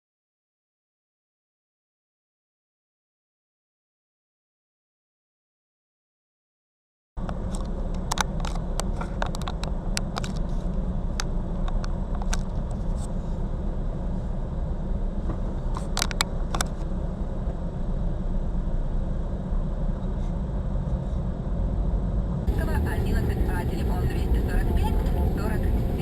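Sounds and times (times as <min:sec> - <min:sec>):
car driving rumble: 0:07.2 - 0:26.0.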